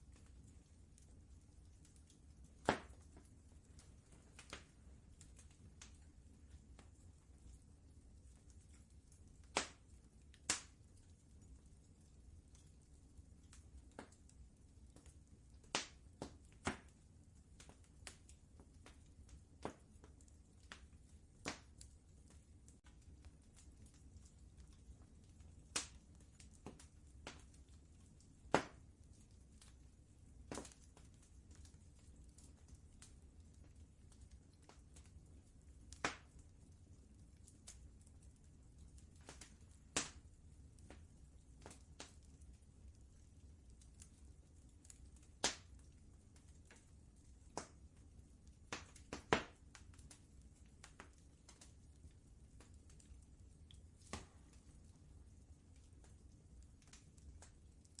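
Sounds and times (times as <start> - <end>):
fire pops and snaps: 0.0 - 58.0
wood fire crackling: 0.0 - 58.0.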